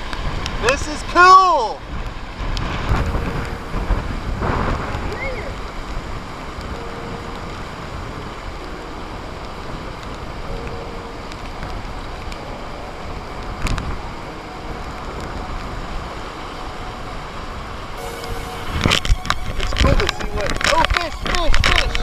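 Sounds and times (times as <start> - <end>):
wind buffeting microphone: 1.8 - 22.0.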